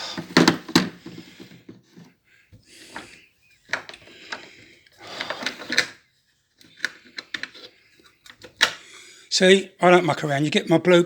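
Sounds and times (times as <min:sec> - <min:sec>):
small clicks and knocks: 0:06.6 - 0:08.8.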